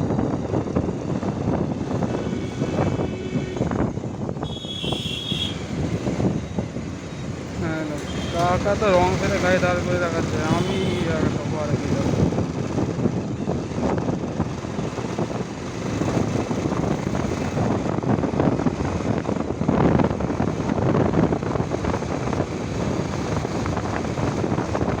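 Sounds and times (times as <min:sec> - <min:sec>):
motorcycle engine: 0:00.0 - 0:19.2
wind buffeting microphone: 0:00.0 - 0:25.0.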